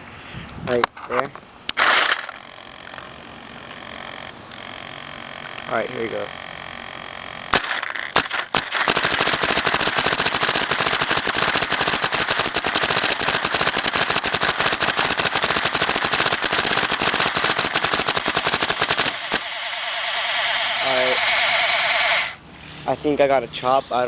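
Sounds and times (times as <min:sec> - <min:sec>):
paintball marker rapid firing: 0:01.7 - 0:02.3, 0:07.5 - 0:22.4.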